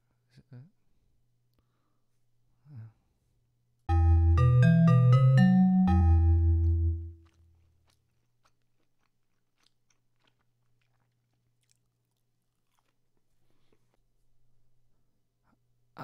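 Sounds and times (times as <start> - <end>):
mallet percussion chord: 3.9 - 7.2
faint chewing: 7.1 - 15.0.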